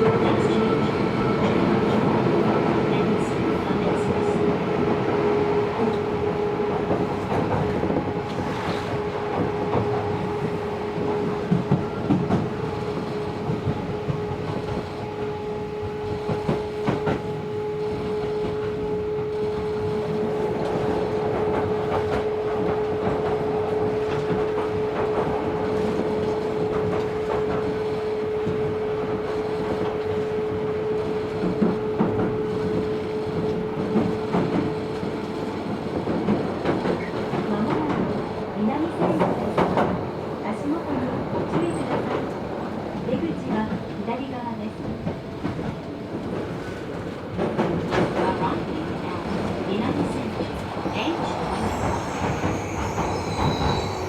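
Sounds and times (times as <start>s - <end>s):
train wheels rolling with hum: 0.0s - 54.0s
clacks over rail joints: 31.1s - 40.7s, 43.0s - 50.6s.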